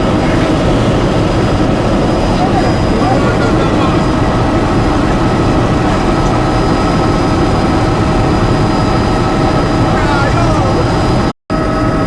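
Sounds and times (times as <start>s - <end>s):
constant whining tones: 0.0s - 12.0s
helicopter engine and rotors drone: 0.0s - 12.0s.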